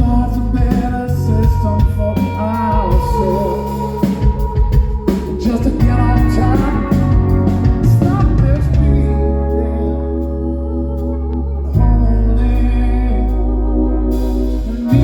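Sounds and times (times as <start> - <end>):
drums: 0.0 - 10.4, 14.0 - 15.0
live rock band playing: 0.0 - 10.4, 14.0 - 15.0
person singing: 0.0 - 15.0.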